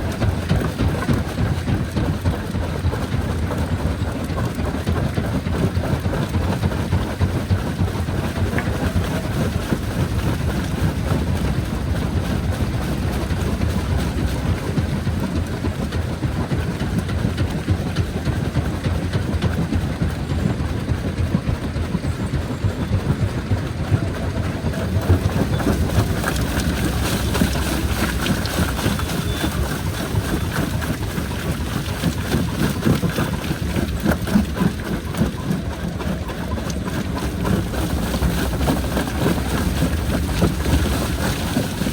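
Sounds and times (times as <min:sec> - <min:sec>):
jaw crusher rumbling: 0:07.0 - 0:17.4, 0:23.6 - 0:41.9.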